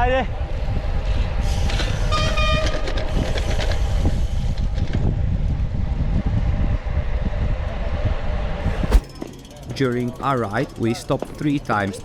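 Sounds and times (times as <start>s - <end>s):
wind buffeting microphone: 0.0s - 9.3s
tyres rushing on road: 2.8s - 12.0s.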